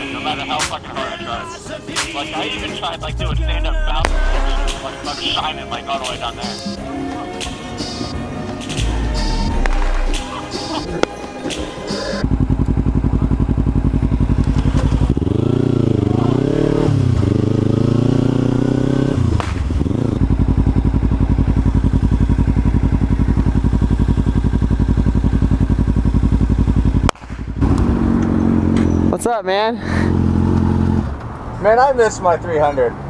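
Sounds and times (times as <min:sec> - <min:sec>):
motorcycle engine revving: 0:03.2 - 0:05.6, 0:07.9 - 0:31.2.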